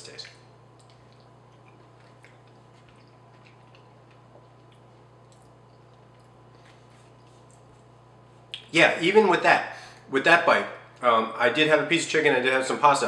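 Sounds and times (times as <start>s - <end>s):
steady low hum: 0.0s - 13.0s
faint chewing: 0.2s - 8.7s.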